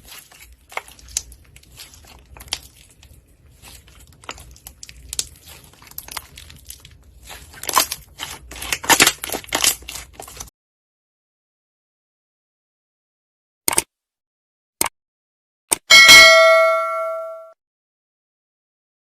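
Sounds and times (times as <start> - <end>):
slime sticky clicks and crackles: 0.0 - 10.5.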